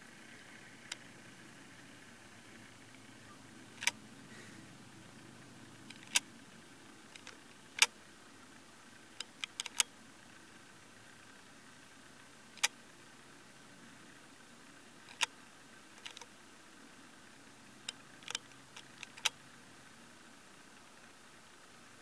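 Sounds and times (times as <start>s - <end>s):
sharp clicks: 3.8s - 4.0s, 5.8s - 6.3s, 7.1s - 8.0s, 9.1s - 10.0s, 12.5s - 12.8s, 15.0s - 15.4s, 16.0s - 16.3s, 17.8s - 19.4s.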